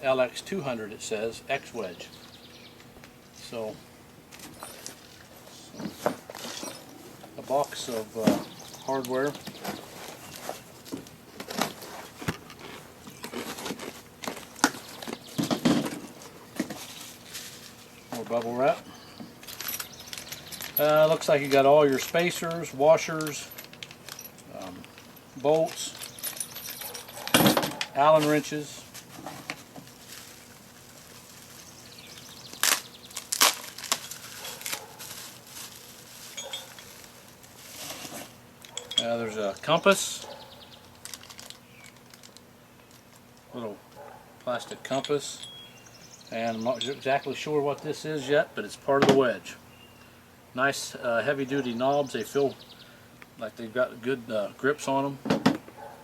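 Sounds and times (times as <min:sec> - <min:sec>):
packaging crinkling and crackling: 0:09.3 - 0:18.5, 0:28.9 - 0:38.3, 0:40.8 - 0:43.4.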